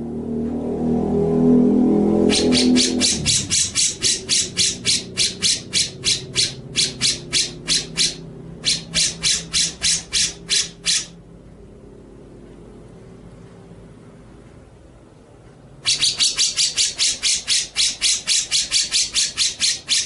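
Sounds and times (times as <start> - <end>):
songbird rasping call notes: 2.2 - 11.2, 15.8 - 20.0.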